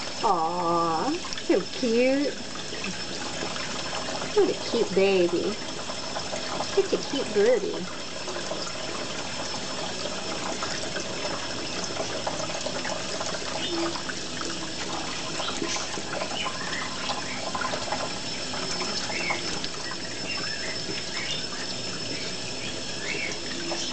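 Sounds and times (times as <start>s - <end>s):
tap water running into hands: 0.0s - 23.9s
parrot chirping: 18.3s - 23.9s.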